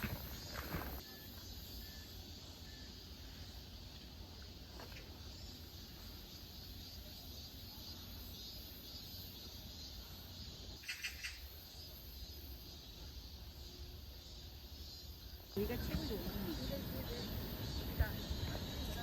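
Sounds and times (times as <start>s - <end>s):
bird chirping: 5.3s - 13.1s.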